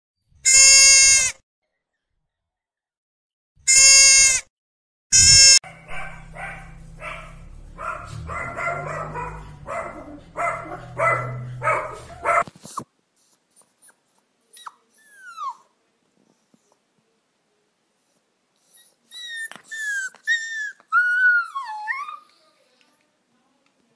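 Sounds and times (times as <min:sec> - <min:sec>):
animal bleating: 0:00.4 - 0:01.4, 0:03.6 - 0:04.4, 0:05.1 - 0:06.7
small dog yapping: 0:05.2 - 0:12.5.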